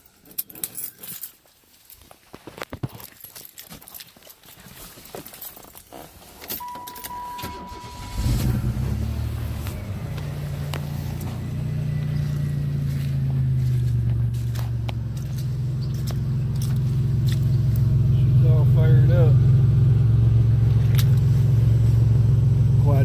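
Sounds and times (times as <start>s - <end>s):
dashboard chime tone: 6.6s - 10.1s
car engine starting and idling: 6.6s - 23.0s.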